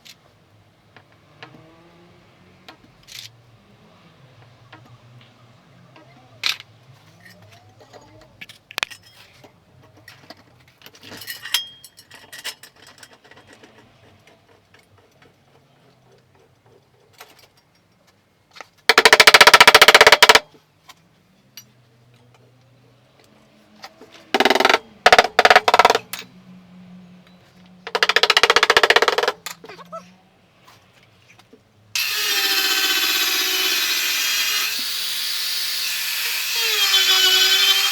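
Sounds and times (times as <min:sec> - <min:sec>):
repair tool rattling bursts: 0:18.9 - 0:20.4, 0:24.4 - 0:26.2, 0:27.9 - 0:29.6, 0:32.0 - 0:37.9.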